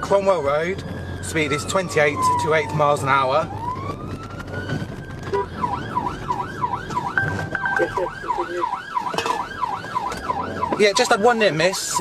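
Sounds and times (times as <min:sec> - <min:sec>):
police siren wail and yelp: 0:00.0 - 0:12.0.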